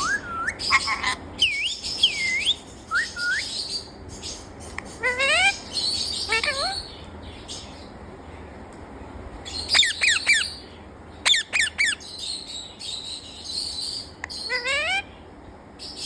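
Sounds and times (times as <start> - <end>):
parrot chirping and chattering: 0.0 - 7.9, 9.4 - 15.1.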